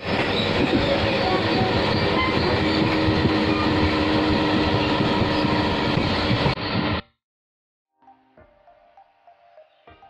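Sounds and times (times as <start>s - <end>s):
train wheels rumbling: 0.0s - 7.0s.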